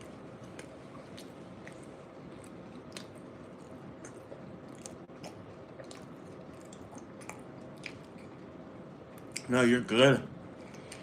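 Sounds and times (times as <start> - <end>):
chewing food: 0.0 - 8.5
mouth clicks and smacks: 0.4 - 8.4.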